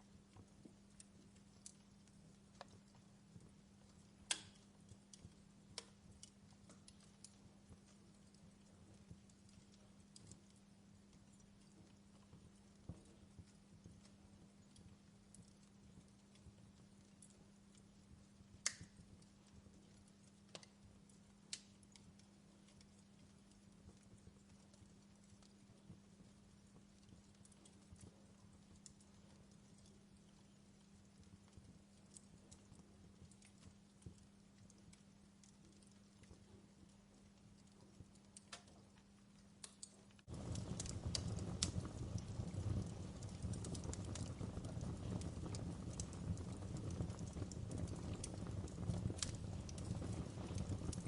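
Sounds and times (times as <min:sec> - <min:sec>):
faint steady hum: 0:00.0 - 0:51.0
wood fire crackling: 0:00.0 - 0:51.0
fire pops: 0:04.2 - 0:10.6, 0:18.5 - 0:20.8, 0:21.5 - 0:23.6, 0:37.6 - 0:38.9, 0:39.6 - 0:51.0
low rush of flame: 0:39.7 - 0:51.0
steady low hum: 0:40.2 - 0:51.0.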